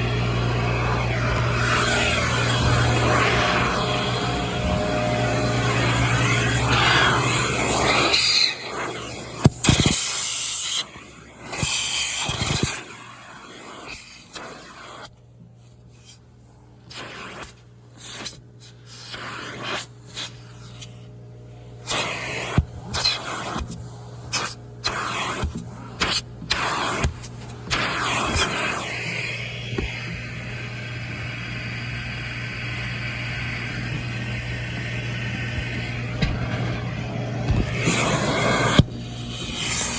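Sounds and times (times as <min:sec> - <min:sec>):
low motor hum: 0:00.0 - 0:09.6, 0:27.1 - 0:39.9
vacuum hose suction rush: 0:00.0 - 0:15.1, 0:16.8 - 0:21.0, 0:21.7 - 0:39.9
nozzle sucking in bursts: 0:00.8 - 0:10.8, 0:37.4 - 0:39.9.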